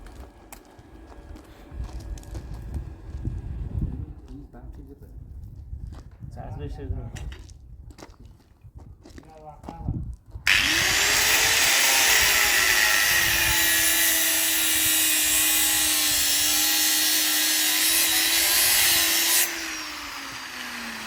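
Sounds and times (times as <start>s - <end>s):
angle grinder grinding metal: 10.5s - 21.0s
grinder motor winding down: 10.5s - 21.0s.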